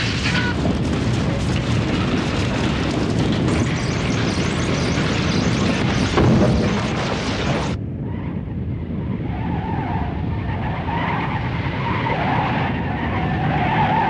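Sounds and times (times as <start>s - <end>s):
crashing and clatter: 0.0s - 7.8s
earthquake rumbling: 0.0s - 9.3s.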